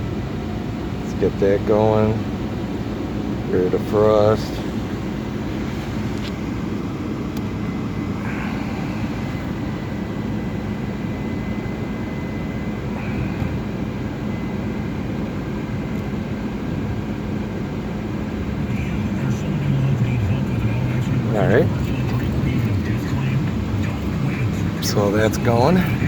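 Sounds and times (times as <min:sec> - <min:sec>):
car engine idling: 0:00.0 - 0:26.0
faint high whine: 0:00.0 - 0:26.0
heater blower running: 0:20.5 - 0:26.0.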